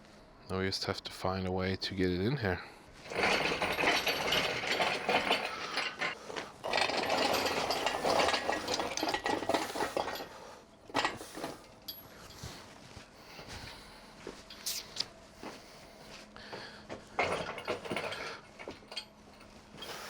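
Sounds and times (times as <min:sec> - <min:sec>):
metallic rattling and clicking: 0:03.0 - 0:10.3.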